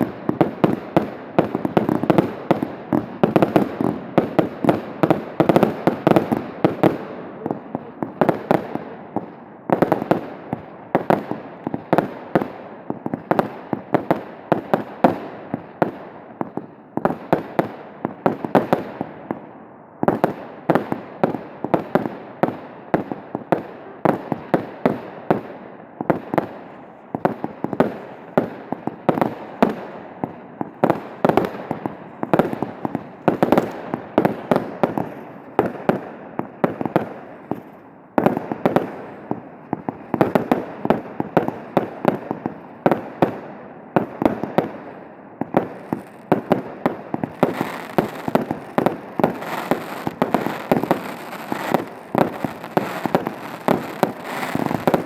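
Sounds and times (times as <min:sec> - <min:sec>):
fireworks crackling: 0:00.0 - 0:09.0, 0:26.1 - 0:55.0
firework bangs: 0:20.1 - 0:43.4, 0:44.0 - 0:55.0.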